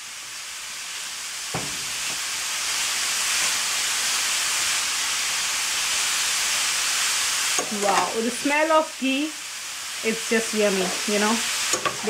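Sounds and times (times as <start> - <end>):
vegetables sizzling in a pan: 0.0 - 12.0
knock on a pan: 1.5 - 2.2.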